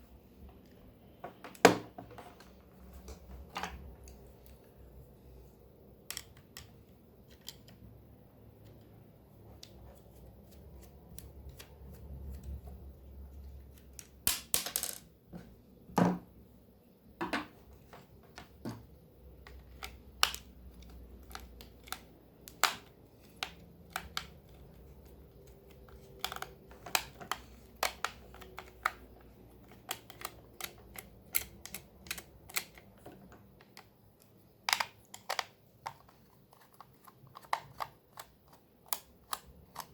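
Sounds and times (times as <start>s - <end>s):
plastic parts clicking and knocking: 17.2s - 39.9s.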